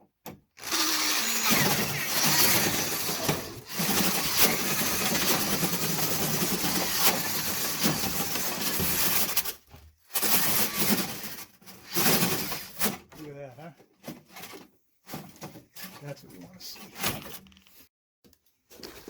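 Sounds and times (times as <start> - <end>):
drill spinning: 0.6 - 9.3.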